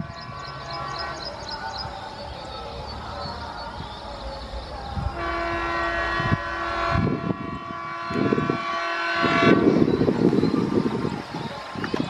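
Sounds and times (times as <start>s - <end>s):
diesel engines chugging: 0.0s - 6.9s
locomotive air horn blast: 5.2s - 9.9s.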